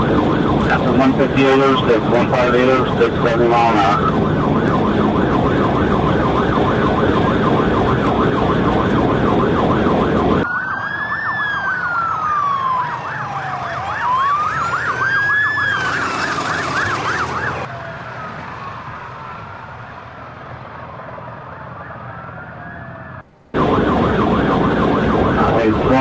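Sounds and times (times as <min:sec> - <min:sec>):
police siren fast yelp: 0:00.0 - 0:20.0, 0:21.7 - 0:26.0
police siren slow wail: 0:00.0 - 0:26.0
heavy rushing noise: 0:14.2 - 0:17.7.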